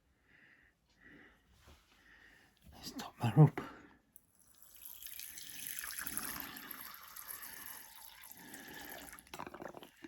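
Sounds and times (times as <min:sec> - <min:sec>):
water pouring into a bowl: 0:04.4 - 0:10.0.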